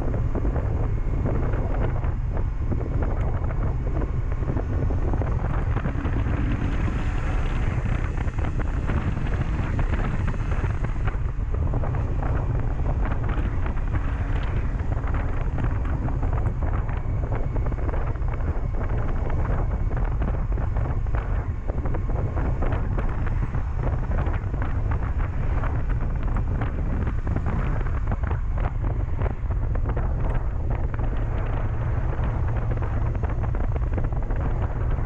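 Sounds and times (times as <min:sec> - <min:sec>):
motorcycle engine running: 0:00.0 - 0:35.0
wind buffeting microphone: 0:00.0 - 0:35.0.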